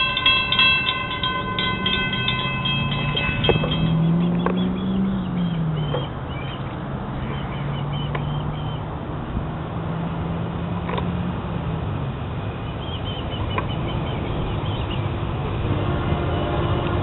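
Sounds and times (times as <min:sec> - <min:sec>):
birds chirping: 0:00.0 - 0:09.0, 0:12.4 - 0:15.5
distant train: 0:00.0 - 0:17.0.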